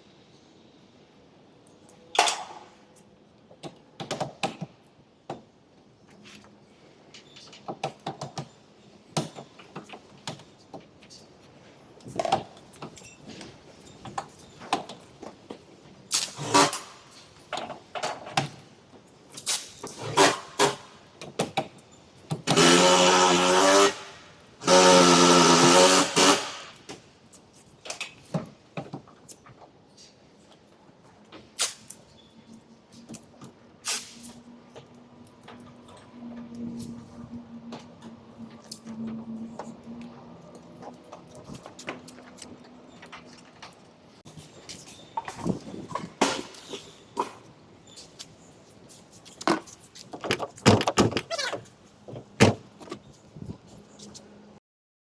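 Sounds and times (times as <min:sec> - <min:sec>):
tools knocking and clicking: 0:49.4 - 0:51.5.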